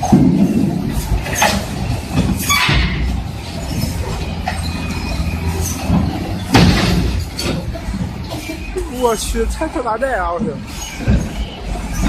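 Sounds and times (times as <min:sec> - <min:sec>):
sharp metallic knocks: 0:00.0 - 0:08.2
diesel engine rumble: 0:00.0 - 0:12.0
steel tracks clanking and squealing: 0:00.0 - 0:12.0.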